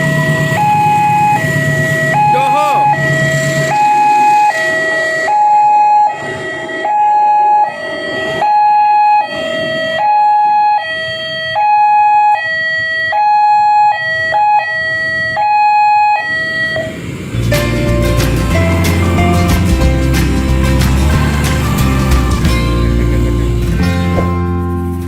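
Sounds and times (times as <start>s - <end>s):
level crossing two-tone alarm: 0.0s - 17.1s.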